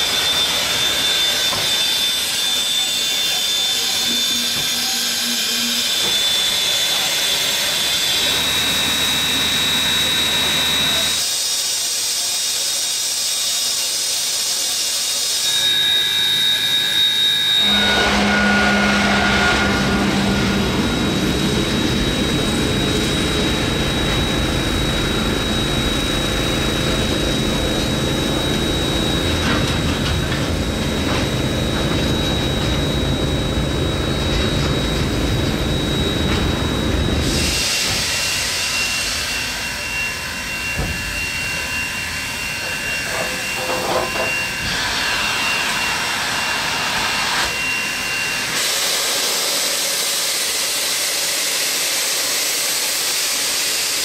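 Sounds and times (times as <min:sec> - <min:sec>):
diesel locomotive idling: 0:00.0 - 0:11.3, 0:17.2 - 0:46.9
thin high whine: 0:00.0 - 0:11.3, 0:14.6 - 0:54.0
steam hissing from locomotive: 0:00.0 - 0:29.9, 0:31.2 - 0:54.0
freight train rumbling past: 0:17.4 - 0:48.6.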